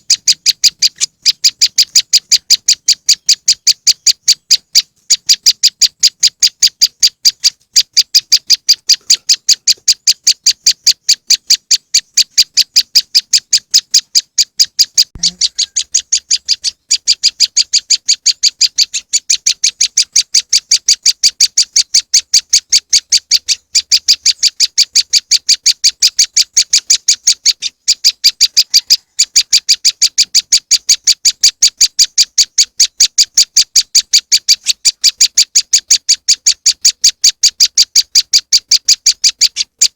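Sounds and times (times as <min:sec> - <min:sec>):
high sharp bird call: 0:14.8 - 0:16.0.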